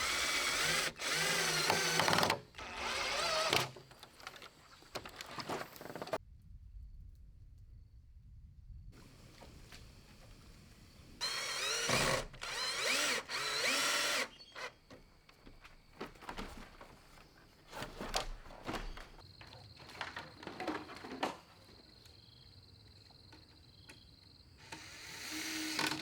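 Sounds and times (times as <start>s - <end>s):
power drill running: 0.0s - 3.9s, 9.0s - 15.0s, 24.6s - 26.0s.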